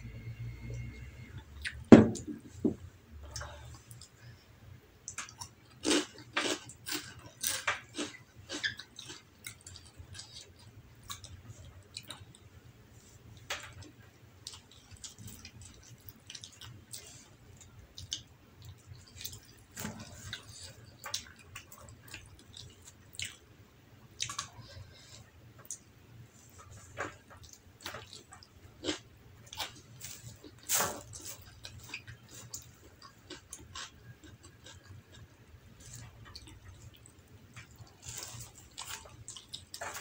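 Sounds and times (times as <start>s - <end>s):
faint low hum: 0.0s - 40.0s
chewing and wet mouth clicks: 5.0s - 12.4s, 14.4s - 19.6s, 20.3s - 23.4s.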